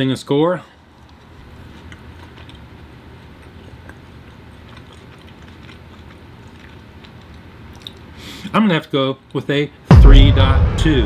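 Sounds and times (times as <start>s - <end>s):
chewing food: 0.8s - 8.2s
low hum: 9.9s - 11.0s.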